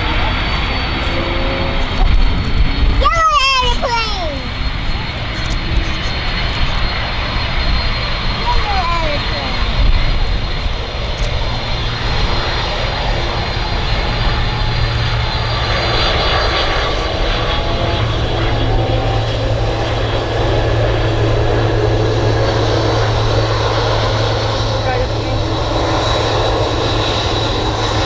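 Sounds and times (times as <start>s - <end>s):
jet engines rumbling: 0.0s - 28.0s.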